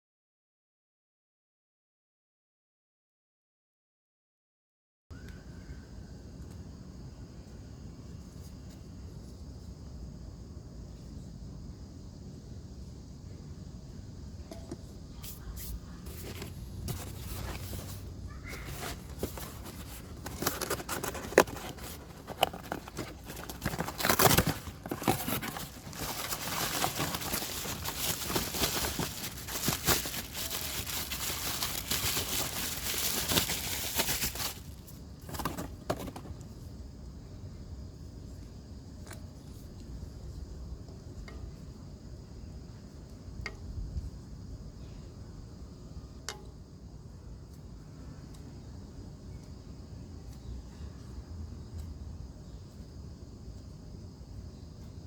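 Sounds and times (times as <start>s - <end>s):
scraping and rustling: 15.2s - 36.4s.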